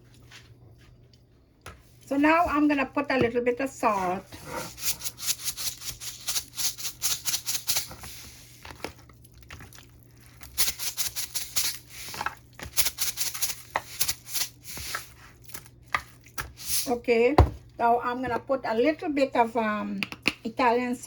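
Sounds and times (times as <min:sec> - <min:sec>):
salt shaker rattling: 0:04.6 - 0:08.8, 0:10.2 - 0:15.7, 0:16.5 - 0:16.9.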